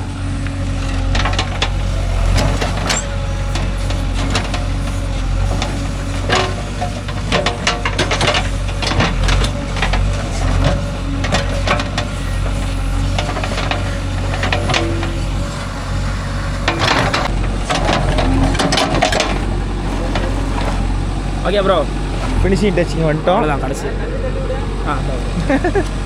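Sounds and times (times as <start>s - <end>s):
diesel engine running: 0.0s - 26.0s
bucket scraping soil and stones: 4.0s - 20.9s.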